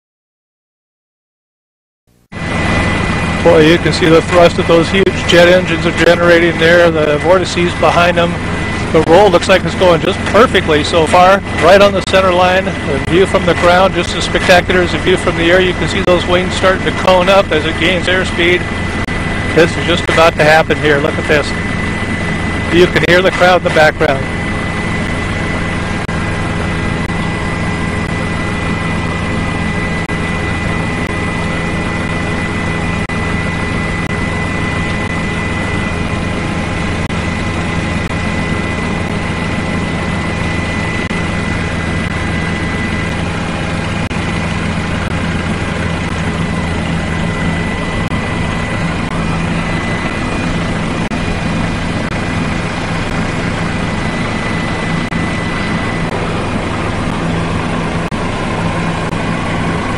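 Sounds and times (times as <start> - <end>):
aircraft engine noise: 2.1 - 59.9
thin steady whine: 2.1 - 59.9.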